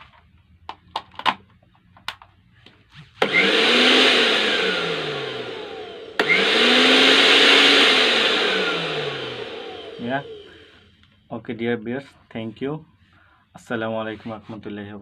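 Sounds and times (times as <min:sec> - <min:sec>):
blender motor whirring: 0:03.2 - 0:10.9.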